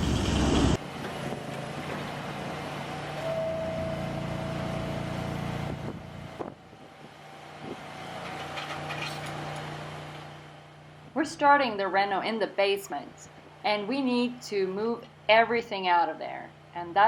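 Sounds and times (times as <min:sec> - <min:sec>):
engine humming: 0:00.0 - 0:15.4
high held tone: 0:03.1 - 0:06.6.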